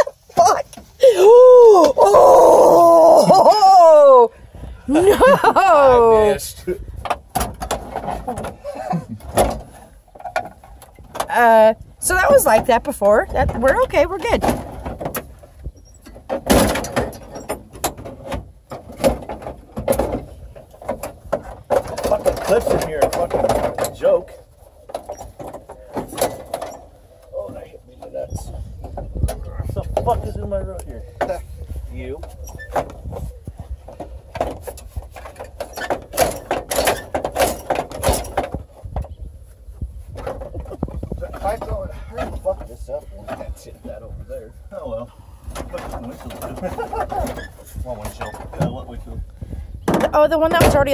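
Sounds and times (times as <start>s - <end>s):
plastic panels knocking and cracking: 7.0s - 8.6s, 12.4s - 15.4s, 16.1s - 24.0s, 33.9s - 39.2s.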